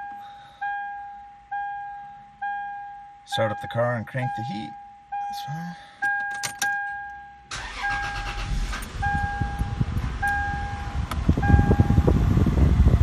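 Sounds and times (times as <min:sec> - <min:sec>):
dashboard warning chime: 0:00.0 - 0:12.2
car engine starting and idling: 0:06.0 - 0:13.0
climate blower fan: 0:08.0 - 0:13.0.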